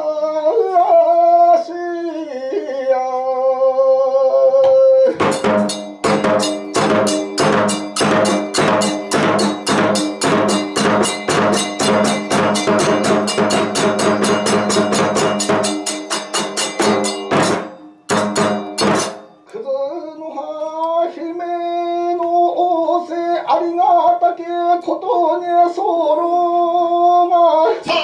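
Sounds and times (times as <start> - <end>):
rapid drum strikes: 4.6 - 19.5
ringing metallic tone: 5.1 - 19.6.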